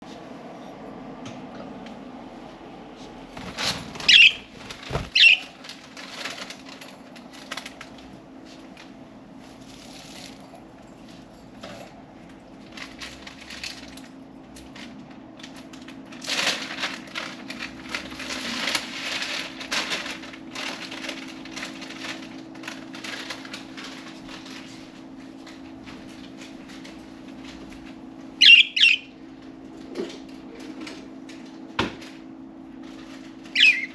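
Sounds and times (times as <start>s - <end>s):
steady low hum: 0.0s - 33.9s
wings flapping and rustling: 3.3s - 10.5s, 14.6s - 28.0s
budgies chirping: 4.1s - 5.5s, 28.4s - 29.1s, 33.6s - 33.9s.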